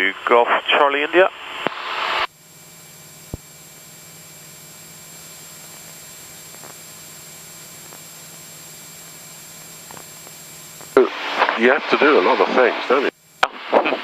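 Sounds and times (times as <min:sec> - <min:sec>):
low even hum: 0:00.0 - 0:14.0
radio static hiss: 0:00.0 - 0:14.0.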